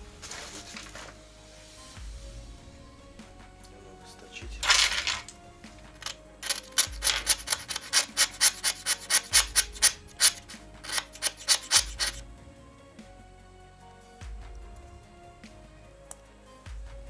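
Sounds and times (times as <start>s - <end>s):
file rasping: 4.6s - 12.2s.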